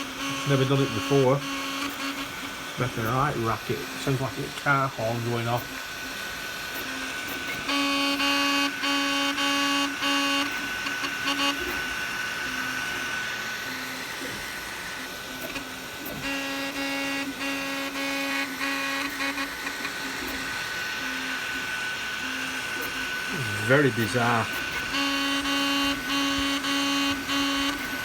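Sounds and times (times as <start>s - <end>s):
printer honking: 0.0s - 4.4s, 7.6s - 13.2s, 16.2s - 28.0s
steady high whine: 19.3s - 28.0s.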